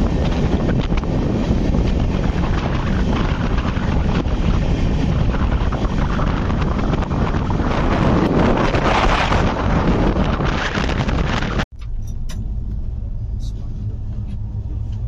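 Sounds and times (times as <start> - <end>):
wind buffeting microphone: 0.0 - 11.7
train rumbling on track: 0.0 - 15.0.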